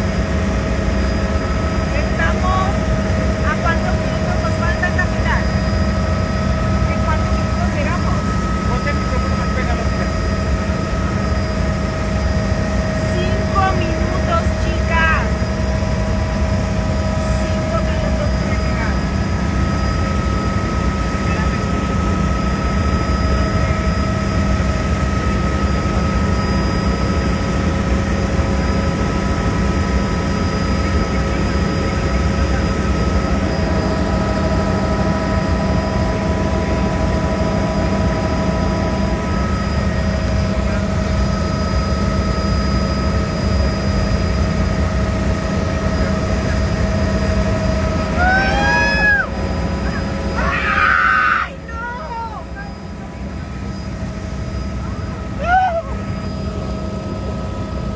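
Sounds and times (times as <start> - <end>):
constant tonal whine: 0.0 - 57.9
helicopter rotor and engine rumble: 0.0 - 57.9
passenger crying out: 47.9 - 53.0, 55.1 - 56.4.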